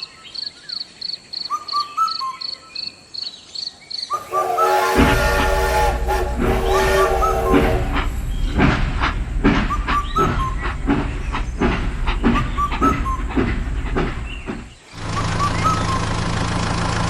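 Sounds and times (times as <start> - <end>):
whistle-like glides: 4.1 - 16.3
rhythmic chuffing: 4.2 - 16.4
low engine hum: 5.0 - 17.0.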